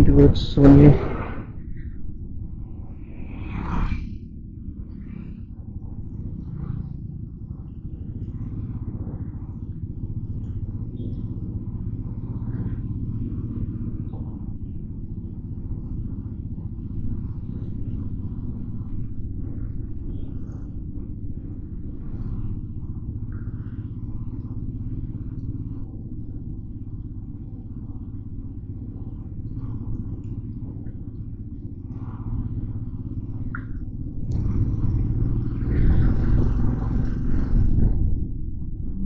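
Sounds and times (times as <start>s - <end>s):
loud rushing noise: 0.0s - 1.7s
motorcycle engine rumbling: 4.5s - 39.0s
road noise: 34.2s - 39.0s.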